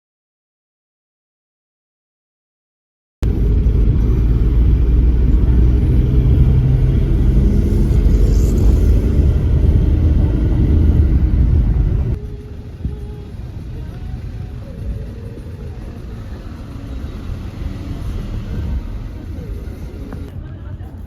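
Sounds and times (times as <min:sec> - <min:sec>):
loud low rumble: 0:03.2 - 0:20.3.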